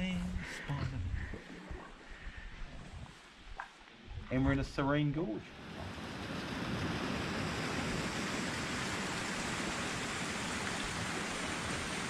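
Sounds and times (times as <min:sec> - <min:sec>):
waterfall rushing: 0:05.5 - 0:12.0.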